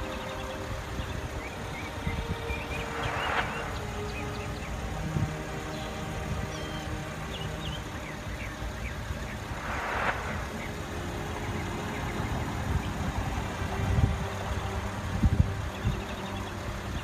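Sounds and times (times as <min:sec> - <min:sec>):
vehicle engine low rumble: 0:00.6 - 0:17.0
short burst of hiss: 0:09.4 - 0:11.5.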